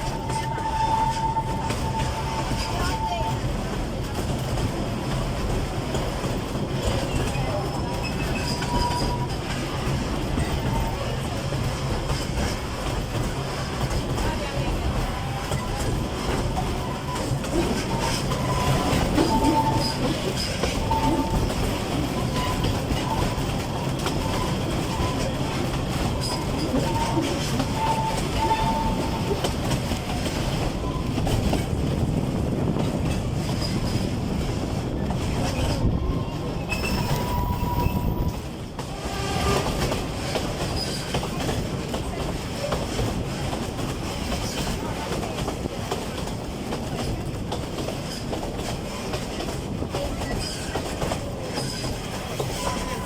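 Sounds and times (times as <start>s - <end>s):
train wheels clacking over rails: 0.0s - 53.0s
faint high squeal: 36.7s - 38.4s.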